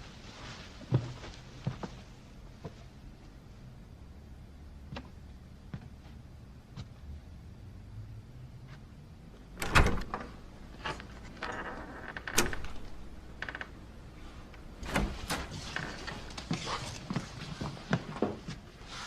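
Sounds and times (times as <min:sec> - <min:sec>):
door latch and handle clicks: 0:09.6 - 0:10.4, 0:12.2 - 0:13.1
door thumping: 0:09.6 - 0:10.4, 0:12.1 - 0:13.2
door creaking: 0:09.6 - 0:17.1.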